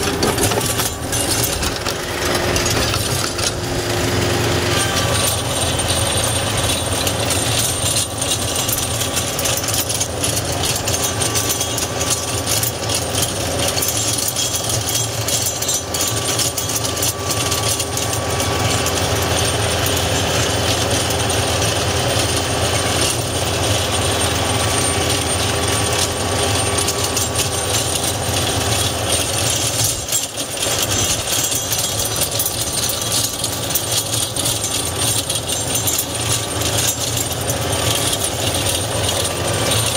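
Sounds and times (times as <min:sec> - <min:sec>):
tiller tines clattering in soil: 0:00.0 - 0:39.9
tractor diesel engine running: 0:00.0 - 0:39.9.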